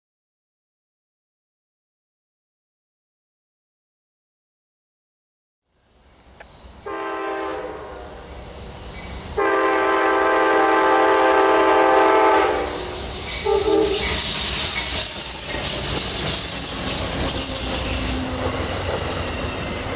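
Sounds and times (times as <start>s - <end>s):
high steel hiss: 5.7s - 19.9s
train horn blasts: 6.8s - 8.2s, 9.4s - 14.2s
train wheels clicking over rail joints: 12.8s - 19.9s.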